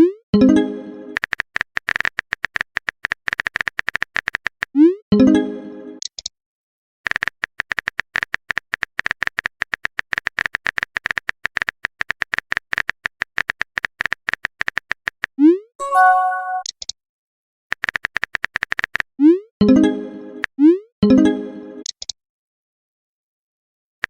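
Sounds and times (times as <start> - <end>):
chime: 15.8 - 16.6.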